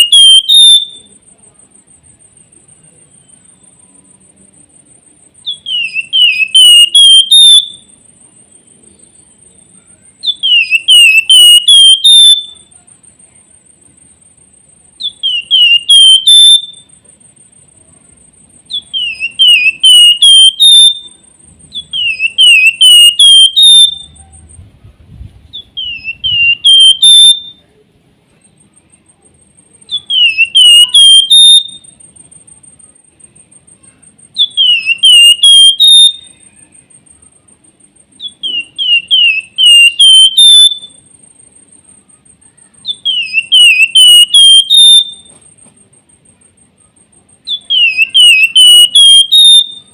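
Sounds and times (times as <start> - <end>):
songbird whistling song: 0.0 - 1.2, 2.4 - 4.2, 5.4 - 12.8, 14.9 - 17.1, 18.6 - 24.6, 25.4 - 27.8, 29.8 - 32.4, 34.3 - 37.4, 38.1 - 41.2, 42.0 - 45.6, 46.7 - 49.9.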